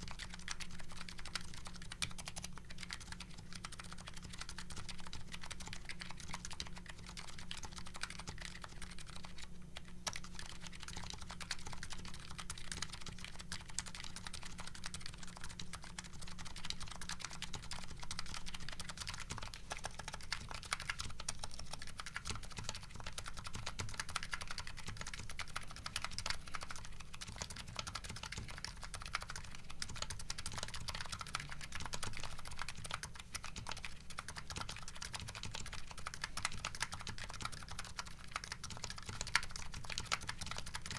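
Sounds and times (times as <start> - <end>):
fast keyboard typing: 0.0 - 40.9.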